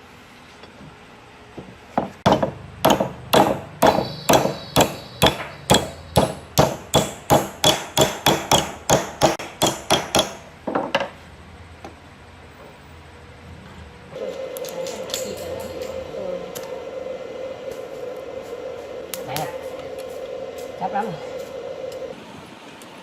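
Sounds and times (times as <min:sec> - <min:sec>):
hammer blows: 0:02.2 - 0:10.5.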